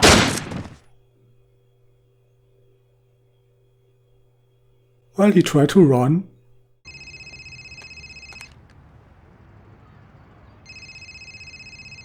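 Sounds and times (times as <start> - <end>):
telephone ringing electronic trill: 6.9 - 8.4, 10.7 - 12.0.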